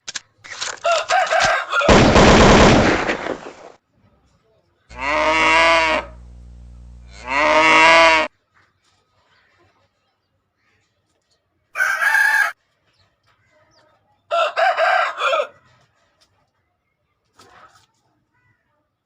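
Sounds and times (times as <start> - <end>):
rooster crowing: 0.8 - 2.0, 4.9 - 6.2, 7.1 - 8.3, 11.8 - 12.6, 14.3 - 15.5
harsh rough burst: 1.9 - 3.7, 4.9 - 8.3
faint low hum: 4.9 - 8.3.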